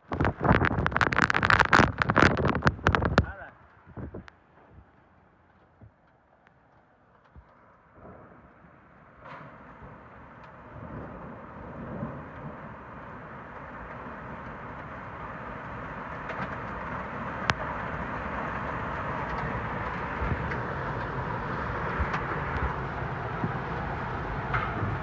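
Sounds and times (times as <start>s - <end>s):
car road noise from inside: 0.0s - 4.2s, 10.0s - 25.0s.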